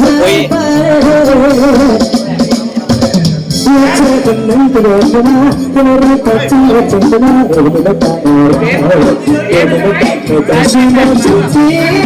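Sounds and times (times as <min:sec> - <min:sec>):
pop song with singing: 0:00.0 - 0:12.0.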